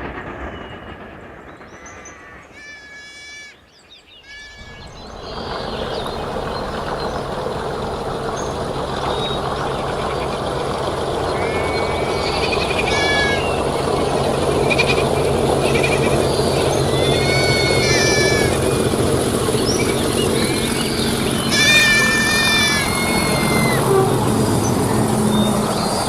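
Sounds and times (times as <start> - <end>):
diesel locomotive engine running: 0.0 - 3.5, 4.2 - 26.0
high animal calls: 2.0 - 3.6, 4.2 - 6.0, 9.0 - 26.0.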